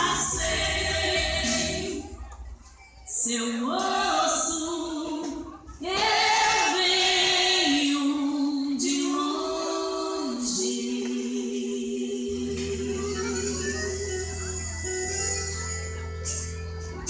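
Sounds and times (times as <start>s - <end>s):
voices singing slow melody: 0.0s - 15.2s.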